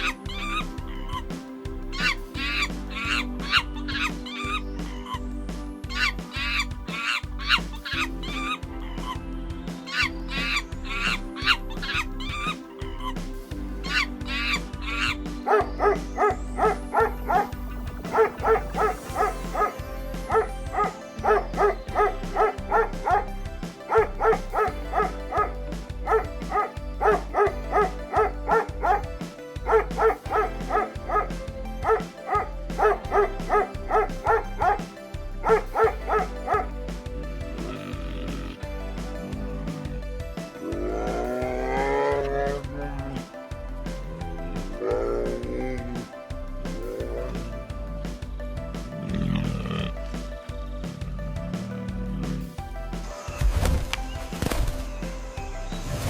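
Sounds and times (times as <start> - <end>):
background music with beat: 0.0 - 56.0
dog barking: 18.1 - 19.7, 20.3 - 23.2, 23.9 - 25.5, 26.1 - 29.0, 29.7 - 34.8, 35.4 - 36.7.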